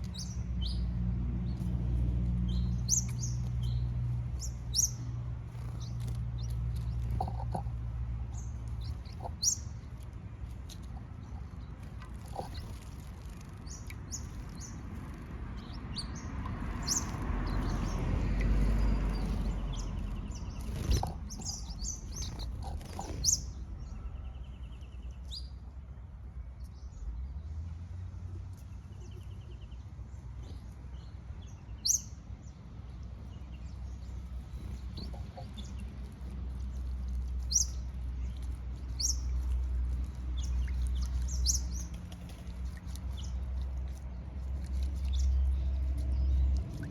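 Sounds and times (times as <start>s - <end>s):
parrots chirping: 12.1s - 23.5s.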